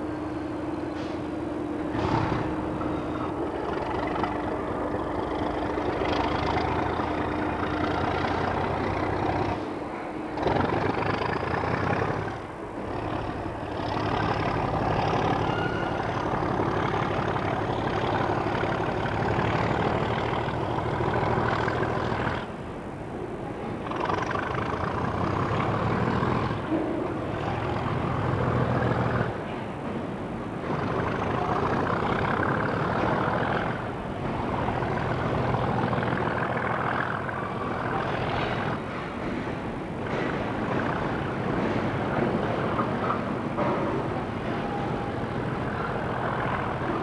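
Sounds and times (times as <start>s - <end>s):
train engine noise: 0.0s - 47.0s.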